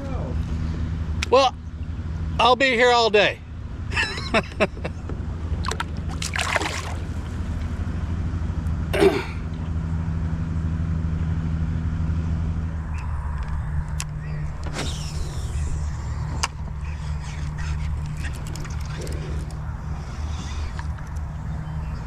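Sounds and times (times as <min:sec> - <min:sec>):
steady low drone: 0:00.0 - 0:22.0
short splashes or knocks: 0:05.6 - 0:07.3.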